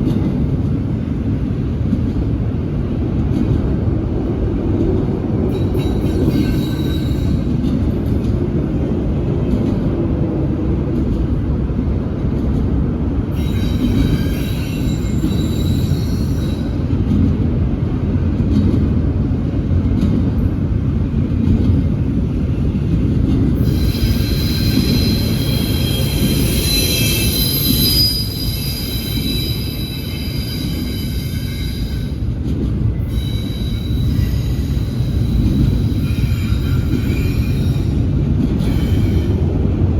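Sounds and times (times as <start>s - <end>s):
freight train rumbling past: 0.0s - 39.9s
high-pitched wheel squeal: 13.4s - 16.8s, 23.6s - 32.2s, 33.1s - 38.0s.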